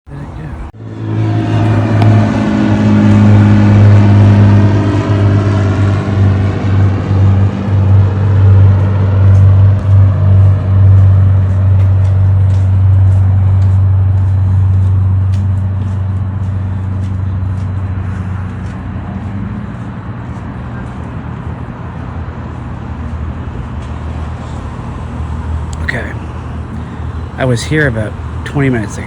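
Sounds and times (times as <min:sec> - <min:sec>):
vehicle engine humming: 0:00.0 - 0:29.0.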